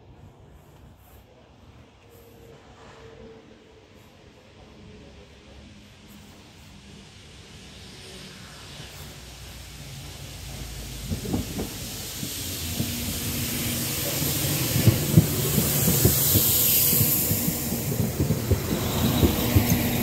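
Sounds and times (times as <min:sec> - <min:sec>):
train diesel engine humming: 0:01.7 - 0:20.0
train wheels clacking over joints: 0:10.0 - 0:20.0.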